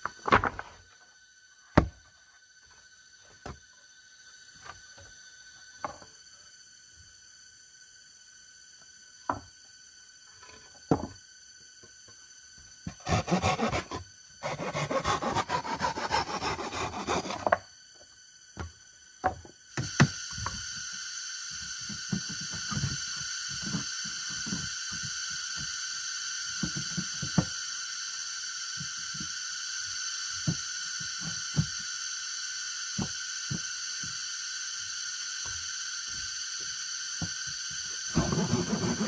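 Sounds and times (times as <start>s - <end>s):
steady high hiss: 0.0s - 39.0s
hand tool scraping wood: 12.9s - 17.6s, 38.1s - 39.0s.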